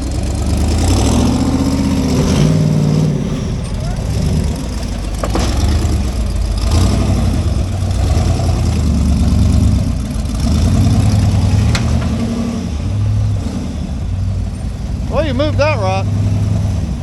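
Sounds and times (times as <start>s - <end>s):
engine running at low revs: 0.0s - 17.0s.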